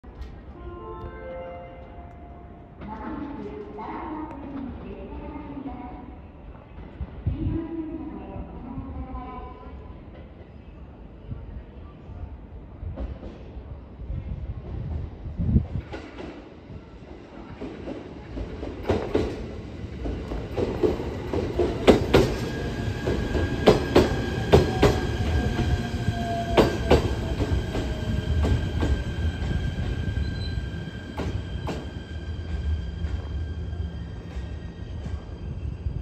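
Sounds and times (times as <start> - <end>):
train rumbling: 12.6 - 36.0.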